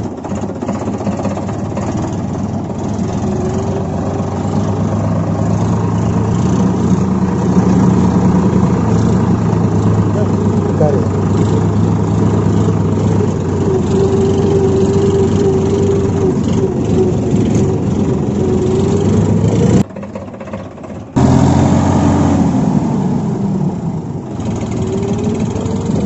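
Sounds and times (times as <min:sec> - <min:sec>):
motor whining: 0:02.6 - 0:19.8.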